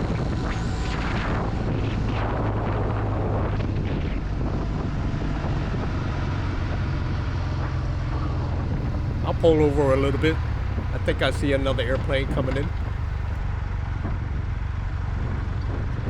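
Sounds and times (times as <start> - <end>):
motorcycle engine cruising: 8.8 - 13.4.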